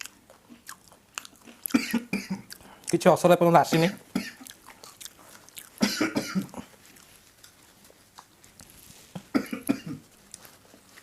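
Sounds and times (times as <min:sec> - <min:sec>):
person coughing: 0:01.7 - 0:02.5, 0:03.7 - 0:04.4, 0:05.8 - 0:06.6, 0:09.2 - 0:10.0.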